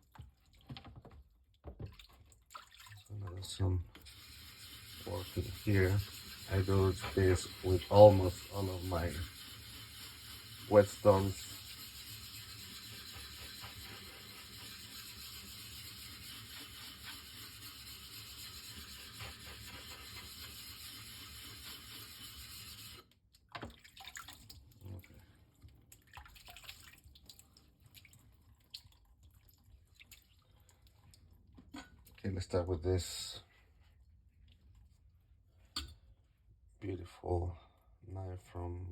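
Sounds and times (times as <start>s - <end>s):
water tap running: 3.9s - 23.0s.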